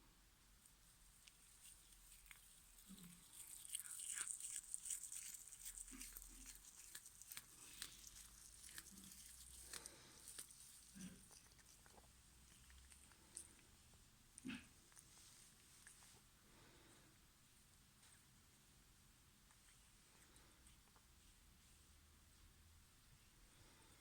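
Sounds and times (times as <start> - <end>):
tinsel crinkling and rustling: 0.6 - 11.8.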